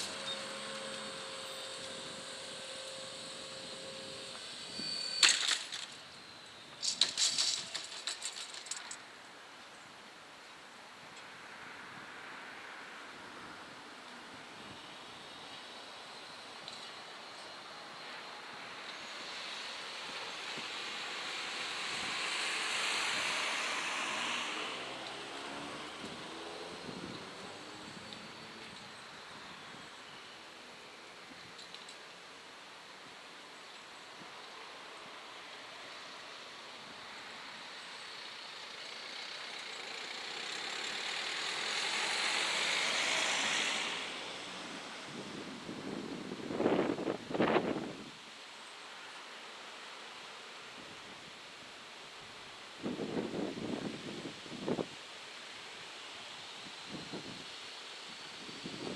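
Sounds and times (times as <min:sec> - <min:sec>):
vehicle passing with rushing noise: 0:00.0 - 0:04.9, 0:18.3 - 0:29.8, 0:35.0 - 0:47.9.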